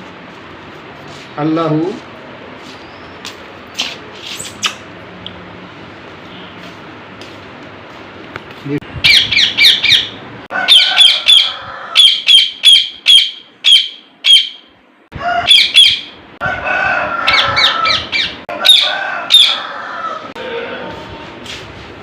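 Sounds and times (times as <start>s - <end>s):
parrot calling: 9.0s - 16.2s, 17.2s - 20.3s.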